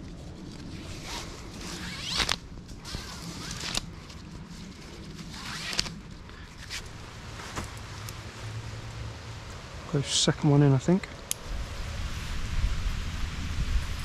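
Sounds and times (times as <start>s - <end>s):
hammock straps being handled: 0.0s - 9.0s.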